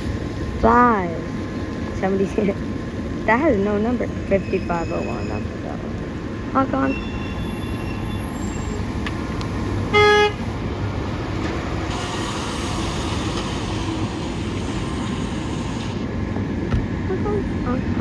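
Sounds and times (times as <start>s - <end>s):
trucks idling and passing: 0.0s - 18.0s
garbage truck horn honk: 9.9s - 10.4s, 11.9s - 15.4s.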